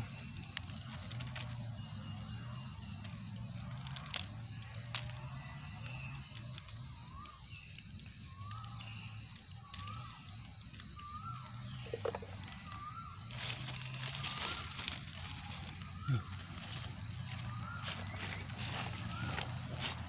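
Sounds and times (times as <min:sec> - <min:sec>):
dry leaves rustling: 0:00.0 - 0:20.0
bird calling: 0:07.0 - 0:20.0.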